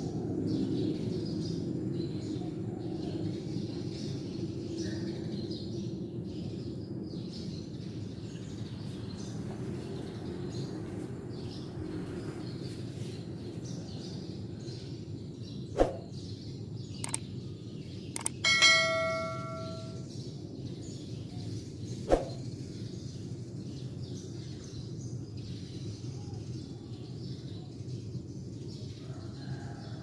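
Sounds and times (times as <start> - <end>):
outdoor background noise: 0.0 - 30.0
faint bird chirps: 17.0 - 17.4, 18.1 - 20.1
loud metallic ring: 18.4 - 20.1.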